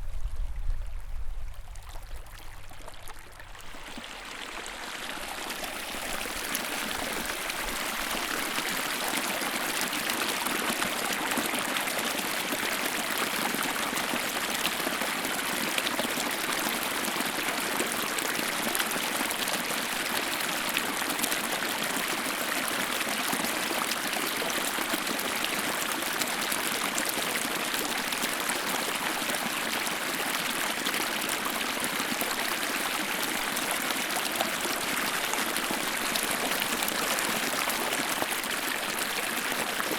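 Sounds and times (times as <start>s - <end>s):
small stream flowing: 0.0s - 39.9s.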